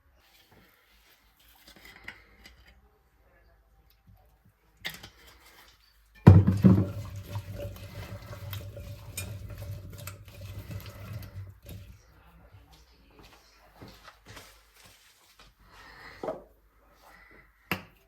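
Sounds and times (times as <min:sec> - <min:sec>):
tap water running into sink: 0:06.3 - 0:12.0.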